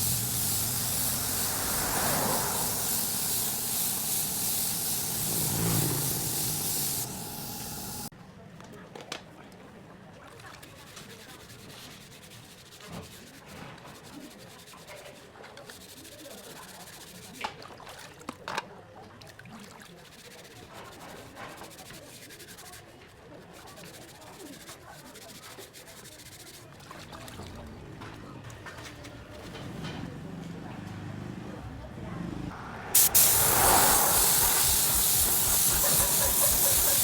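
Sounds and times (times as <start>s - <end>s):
sandpaper rubbing on surface: 0.0s - 8.1s, 10.8s - 17.2s, 20.1s - 26.6s, 33.0s - 37.0s.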